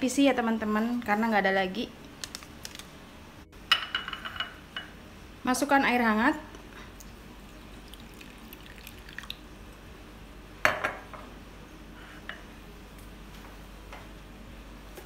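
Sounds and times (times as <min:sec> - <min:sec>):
water pouring into glass bowl: 0:07.0 - 0:09.5.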